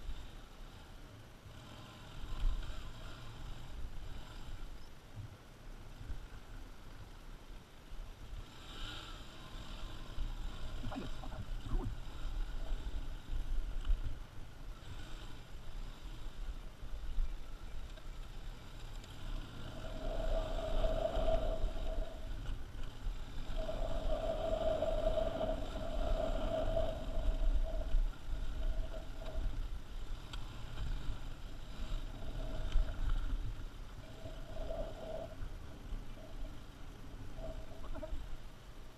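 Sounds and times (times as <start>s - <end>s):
wind rumble on microphone: 0.0s - 38.9s
motorcycle engine off-road: 14.2s - 21.1s.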